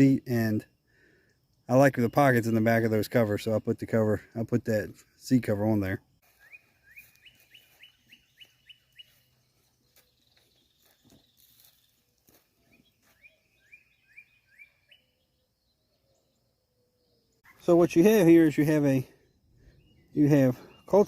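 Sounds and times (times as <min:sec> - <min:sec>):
songbird whistling: 0:06.3 - 0:11.9, 0:12.6 - 0:17.7, 0:19.2 - 0:21.0.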